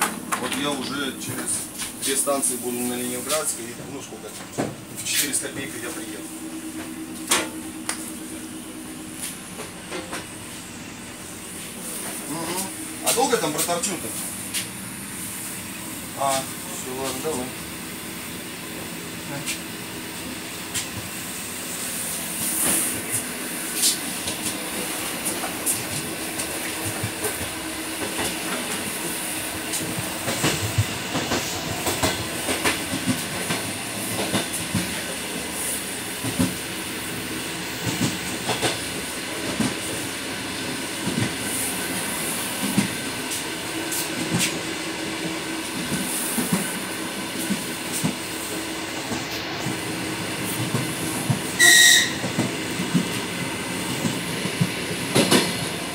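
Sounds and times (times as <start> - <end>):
wheels clicking over rail joints: 0.0 - 5.7
train running hum: 0.0 - 55.9.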